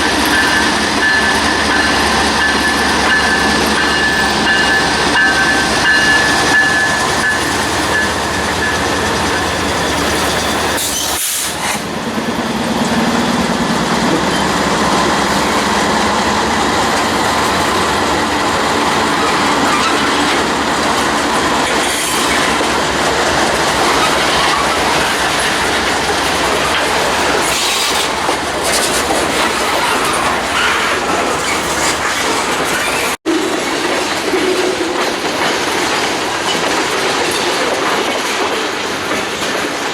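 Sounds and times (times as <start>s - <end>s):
high wheel squeal: 0.0s - 11.9s, 14.1s - 33.2s
train cars clicking over rail joints: 0.0s - 39.9s.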